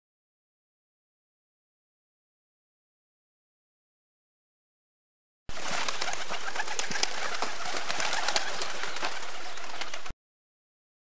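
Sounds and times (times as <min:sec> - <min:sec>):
birds chattering: 0:05.5 - 0:10.1.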